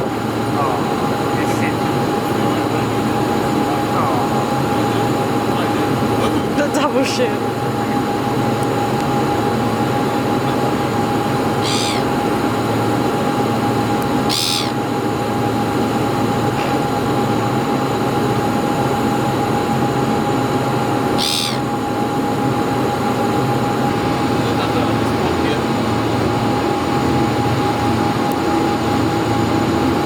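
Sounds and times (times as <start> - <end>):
engine drone with whining tone: 0.0 - 30.0.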